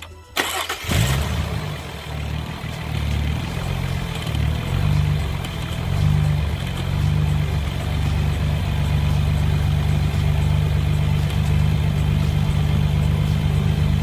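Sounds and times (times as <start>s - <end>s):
car engine starter cranking: 0.0s - 7.0s
car engine idling: 0.4s - 14.0s.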